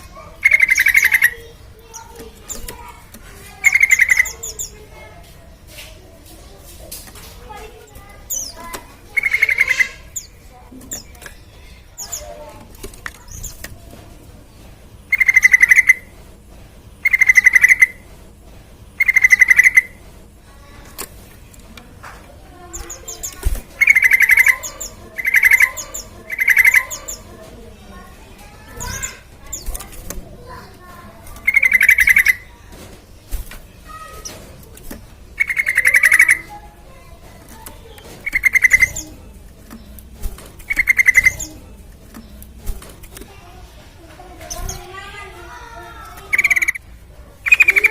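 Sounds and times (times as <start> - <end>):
bird chattering calls: 0.0 - 5.1, 7.4 - 12.6, 15.0 - 16.2, 16.9 - 18.1, 18.9 - 20.0, 22.6 - 32.7, 35.2 - 43.2, 44.4 - 47.9
bulbul singing bubbling phrases: 22.8 - 27.4, 31.4 - 32.5, 35.4 - 36.6, 46.3 - 46.8.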